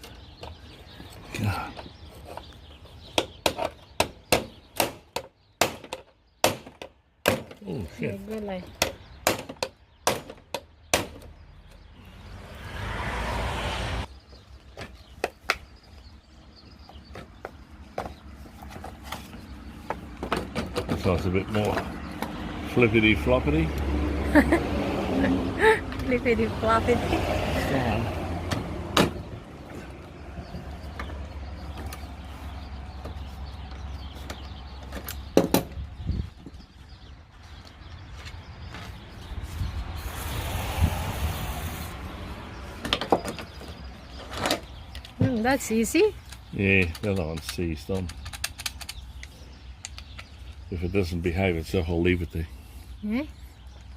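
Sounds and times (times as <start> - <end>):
sharp metal knocks: 8.8 - 11.3.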